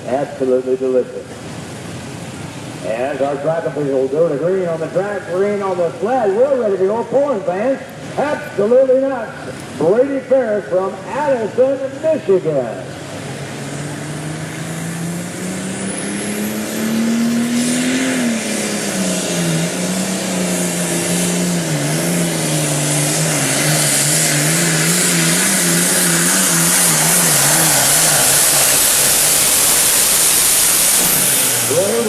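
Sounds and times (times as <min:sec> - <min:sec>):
tractor diesel engine at full power: 0:00.0 - 0:32.0
hiss: 0:23.6 - 0:32.0.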